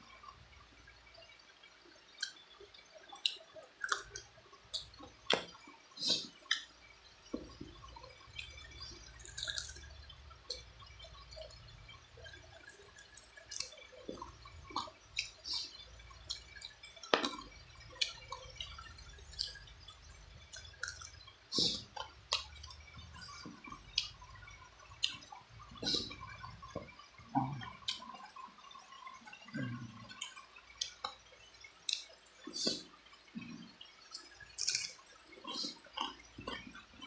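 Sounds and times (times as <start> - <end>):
wet chewing and lip smacks: 3.2 - 6.7, 8.2 - 9.9, 12.5 - 27.0, 31.8 - 36.8.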